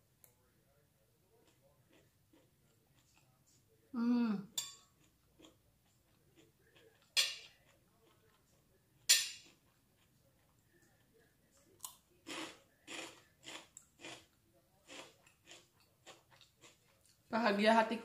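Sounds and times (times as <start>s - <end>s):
metal spoon clinking on plate: 4.6s - 5.0s, 7.2s - 7.6s, 9.1s - 9.5s
crunching of crispy cracker: 11.6s - 17.1s.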